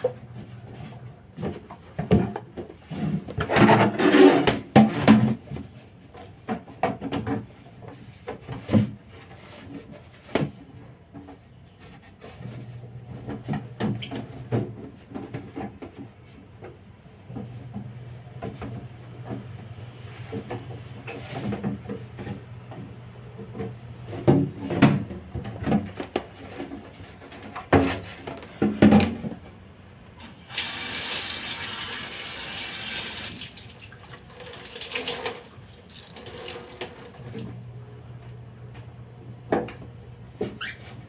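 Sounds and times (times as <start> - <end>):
knocks and clunks of fridge parts: 0.0 - 29.8, 35.7 - 41.0
tap running into sink: 30.5 - 37.5.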